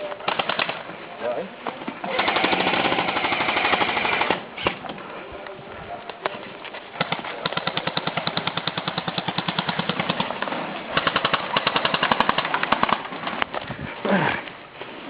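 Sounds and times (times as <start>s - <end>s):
airsoft guns firing: 0.2s - 0.8s, 2.1s - 4.9s, 7.0s - 13.4s.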